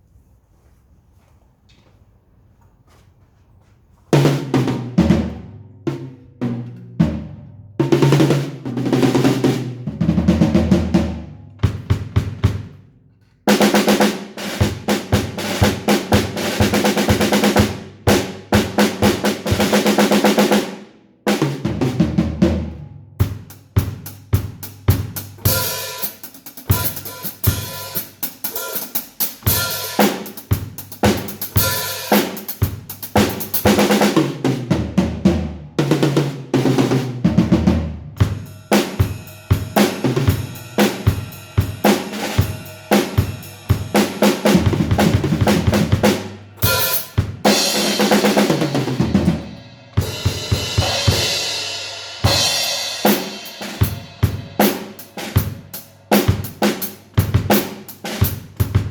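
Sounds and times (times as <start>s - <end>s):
acoustic drum kit: 4.1s - 58.9s
cymbals ringing: 25.4s - 30.4s, 31.4s - 32.4s, 38.2s - 45.0s, 46.0s - 56.3s.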